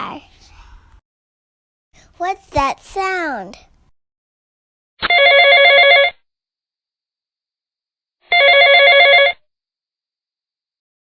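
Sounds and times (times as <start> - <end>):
telephone ringing with fast trill: 5.0 - 6.2, 8.3 - 9.5.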